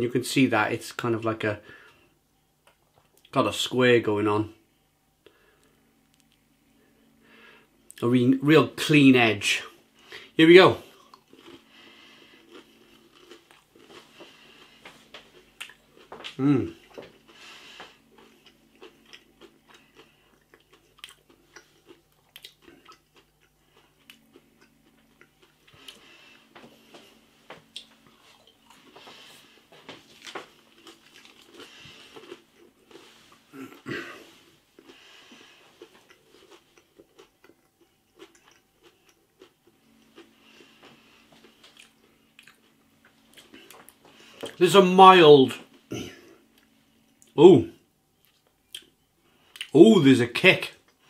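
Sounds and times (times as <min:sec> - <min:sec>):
person chewing crispy food: 0:10.0 - 0:44.6, 0:48.2 - 0:49.8.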